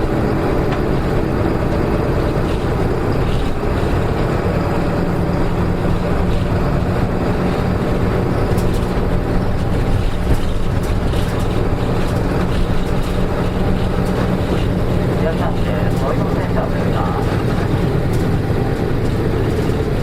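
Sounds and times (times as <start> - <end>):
bus diesel engine running: 0.0 - 20.0
faint rattles: 8.1 - 20.0.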